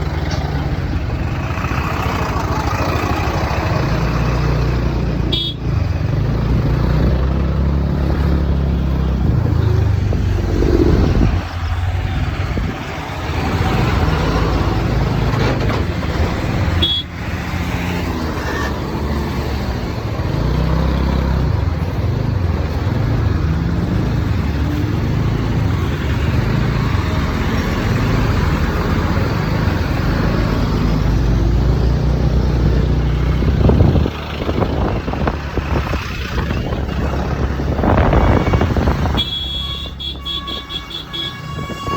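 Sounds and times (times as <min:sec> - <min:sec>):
road traffic: 0:00.0 - 0:41.9
wind buffeting microphone: 0:08.2 - 0:14.1, 0:33.1 - 0:39.3.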